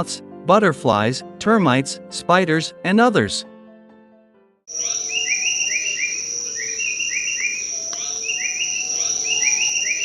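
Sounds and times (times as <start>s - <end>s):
bird calling quick notes: 4.7s - 10.0s
high insect buzz: 4.7s - 10.0s.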